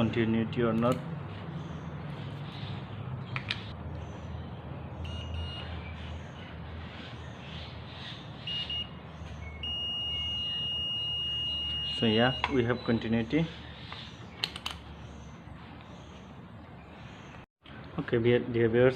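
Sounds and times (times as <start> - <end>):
continuity tester beeping: 5.0 - 5.7, 8.5 - 13.2.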